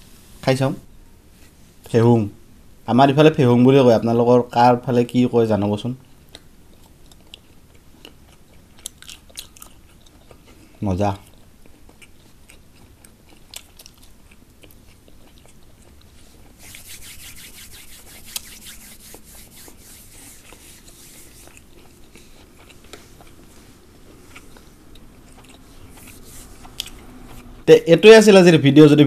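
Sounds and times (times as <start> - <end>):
chewing crunchy food: 6.0 - 16.7, 21.3 - 27.6.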